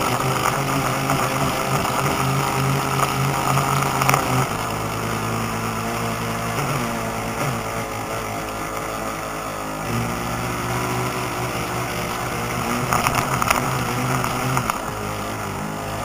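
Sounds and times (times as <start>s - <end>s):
crackling: 0.0s - 9.0s, 9.9s - 15.4s
model boat motors running: 0.0s - 16.0s.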